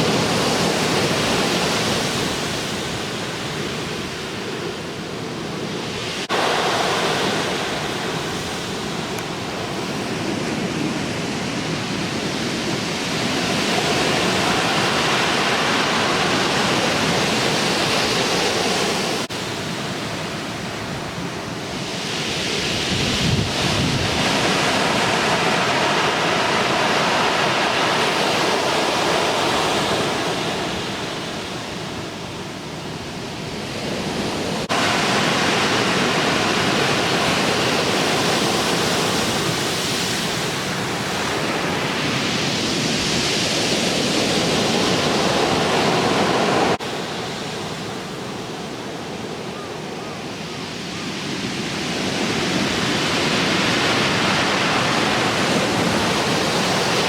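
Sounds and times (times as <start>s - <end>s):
ocean surf breaking: 0.0s - 57.0s
wind buffeting microphone: 0.0s - 57.0s.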